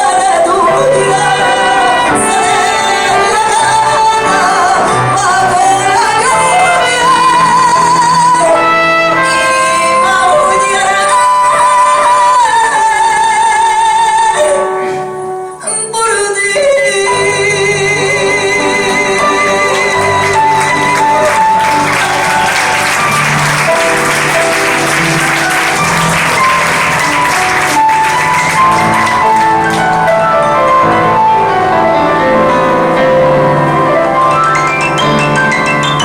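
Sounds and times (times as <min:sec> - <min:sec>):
woman singing ballad: 0:00.0 - 0:21.6
piano accompaniment: 0:00.0 - 0:36.0.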